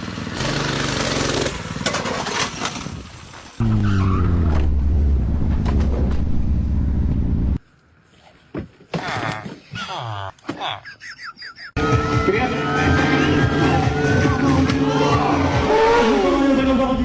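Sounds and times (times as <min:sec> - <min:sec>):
engine drone with dropping pitch: 0:03.6 - 0:07.6.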